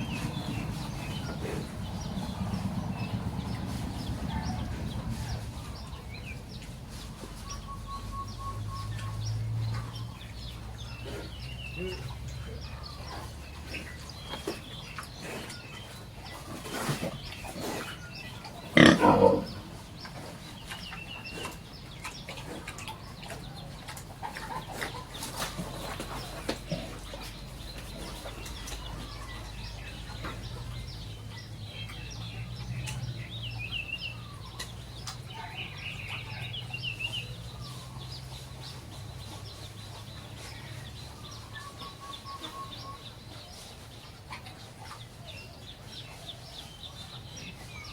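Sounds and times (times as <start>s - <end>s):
chickens clucking: 0.0s - 47.9s
loud animal cry: 18.7s - 19.6s.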